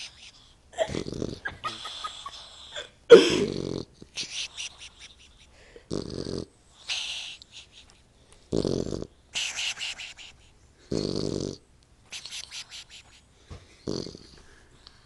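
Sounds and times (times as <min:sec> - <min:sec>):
puppy snoring: 0:00.8 - 0:02.3, 0:03.4 - 0:04.3, 0:05.9 - 0:07.4, 0:08.4 - 0:09.9, 0:10.8 - 0:12.4, 0:13.8 - 0:14.7.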